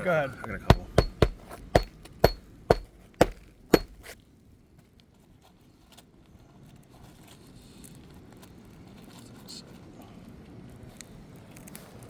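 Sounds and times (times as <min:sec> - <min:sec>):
hammer blows on nail: 0:00.7 - 0:04.1.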